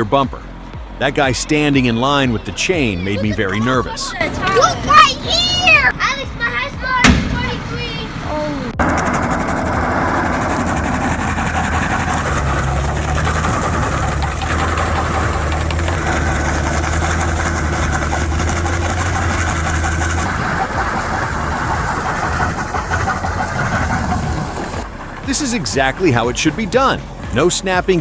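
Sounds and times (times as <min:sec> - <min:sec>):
heavy engine humming: 0:00.0 - 0:28.0
mechanical clatter and rattling: 0:07.0 - 0:08.0, 0:08.8 - 0:25.6.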